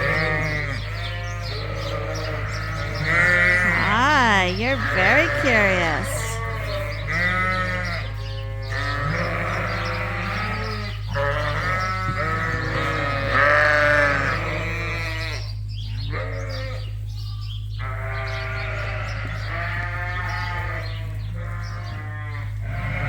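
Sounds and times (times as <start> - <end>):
sheep bleating: 0.0 - 17.0, 17.8 - 23.0
steady low hum: 0.0 - 23.0.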